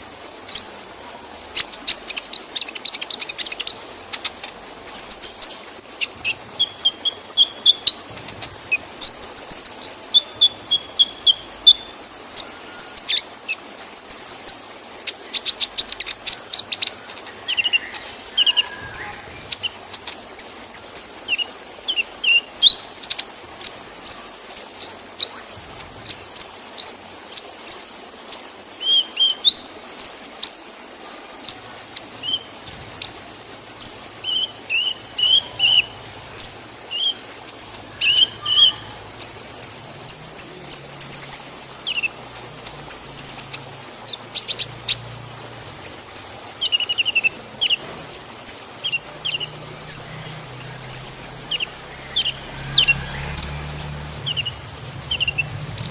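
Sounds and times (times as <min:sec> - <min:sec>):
waterfall rushing: 0:00.0 - 0:55.9
bird chirping and whistling: 0:01.6 - 0:08.0, 0:08.7 - 0:14.6, 0:15.3 - 0:25.6, 0:33.8 - 0:37.2, 0:37.9 - 0:42.2, 0:45.8 - 0:48.2, 0:48.8 - 0:55.9.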